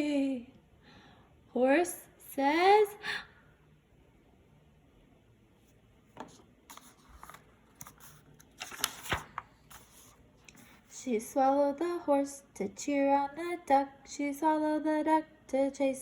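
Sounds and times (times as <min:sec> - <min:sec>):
rustling handling noises: 0:05.6 - 0:11.0.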